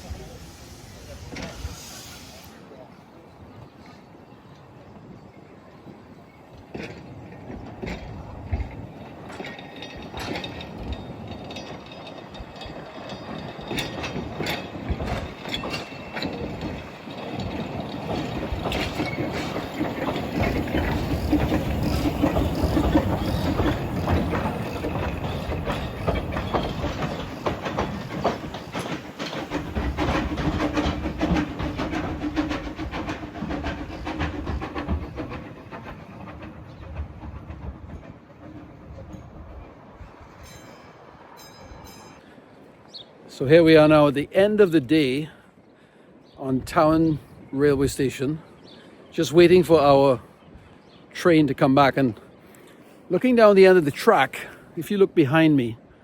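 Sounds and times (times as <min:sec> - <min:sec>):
train wheels clicking on rails: 0:00.0 - 0:02.8, 0:05.8 - 0:45.4, 0:46.0 - 0:56.0
train rumble: 0:00.0 - 0:45.4, 0:46.1 - 0:56.0.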